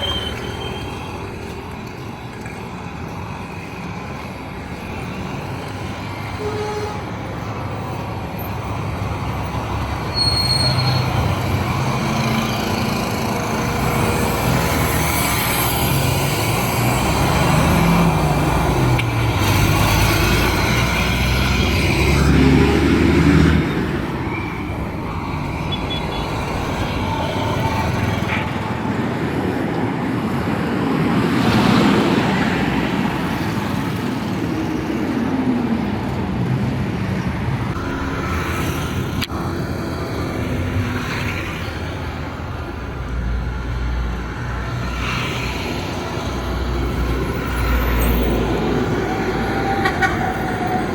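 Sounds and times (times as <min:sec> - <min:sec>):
heavy vehicle engine rumbling: 0:00.0 - 0:31.0
road noise of passing vehicles: 0:00.0 - 0:50.9.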